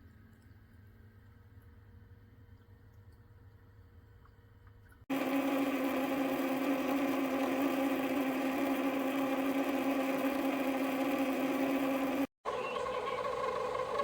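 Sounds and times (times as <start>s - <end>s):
small motor humming: 5.1s - 14.0s.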